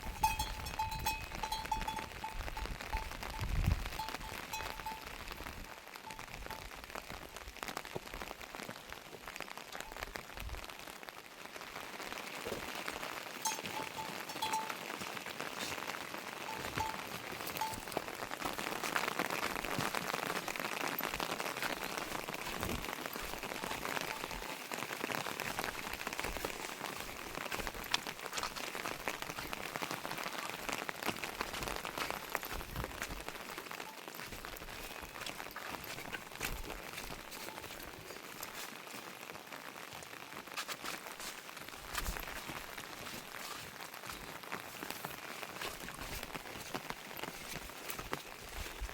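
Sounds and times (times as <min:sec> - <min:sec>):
rain falling: 0:00.0 - 0:48.9.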